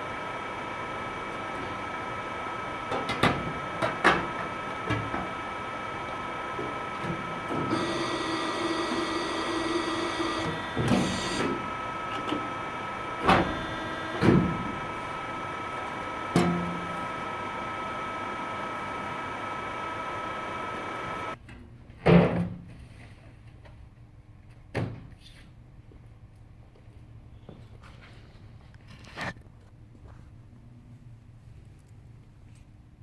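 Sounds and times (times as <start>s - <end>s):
small power tool motor: 0.0s - 21.4s.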